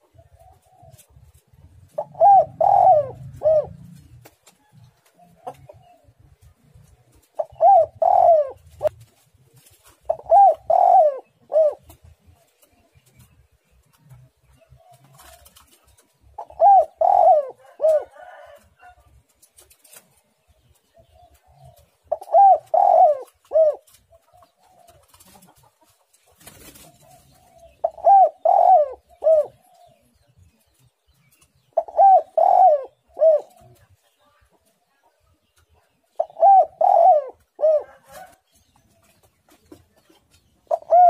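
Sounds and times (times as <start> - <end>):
dove cooing: 0.0 - 6.2, 7.1 - 13.2, 14.7 - 19.0, 20.9 - 25.8, 26.5 - 30.3, 31.6 - 33.8, 36.0 - 39.1, 40.6 - 41.0.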